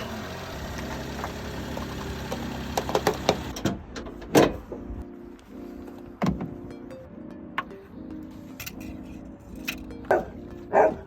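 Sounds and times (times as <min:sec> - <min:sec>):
car engine idling: 0:00.0 - 0:03.5.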